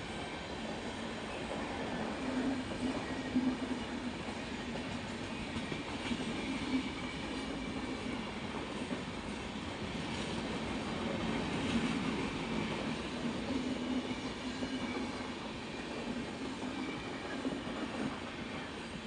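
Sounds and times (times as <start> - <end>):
train wheels rolling on rails: 0.0 - 19.0
high ringing from train wheels: 11.2 - 19.0.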